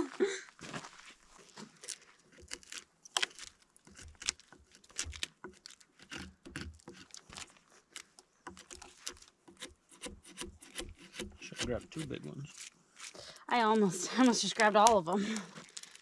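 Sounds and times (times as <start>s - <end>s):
chisel scraping bark off log: 1.8s - 13.1s.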